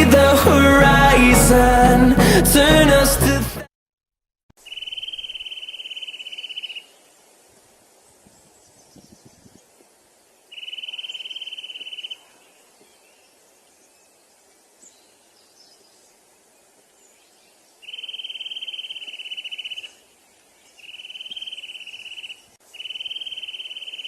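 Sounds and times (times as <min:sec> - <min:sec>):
cricket trilling: 0:04.6 - 0:06.9, 0:17.8 - 0:20.0, 0:20.8 - 0:24.0
faint outdoor background: 0:04.6 - 0:24.0.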